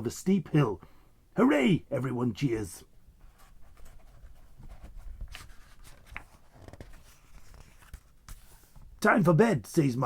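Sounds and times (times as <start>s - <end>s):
paper rustling: 3.3s - 8.9s.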